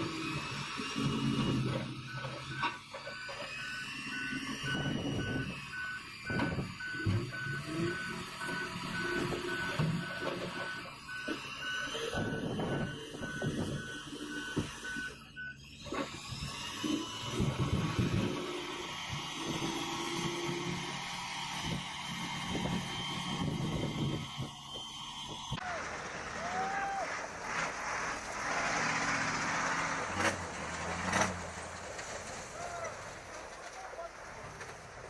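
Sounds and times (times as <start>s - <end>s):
engine running: 0.0s - 35.0s
reversing alarm beeping: 0.1s - 25.6s.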